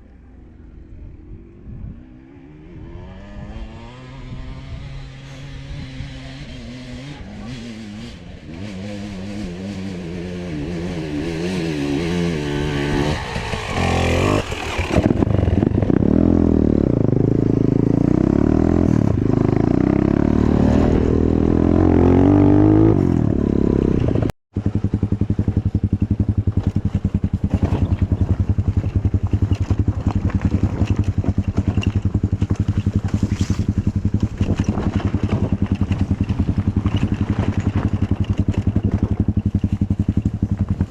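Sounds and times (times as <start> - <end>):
motorcycle engine revving: 1.1 - 40.9.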